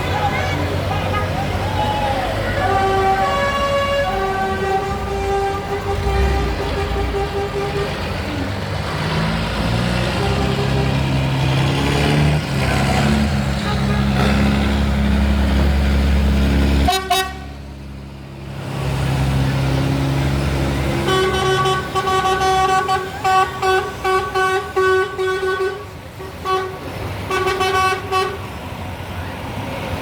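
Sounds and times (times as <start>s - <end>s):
diesel tractor engine running: 0.0s - 30.0s
vehicle horn toots and blasts: 2.6s - 8.2s, 10.1s - 11.3s, 13.6s - 14.5s, 16.9s - 17.6s, 21.0s - 28.4s.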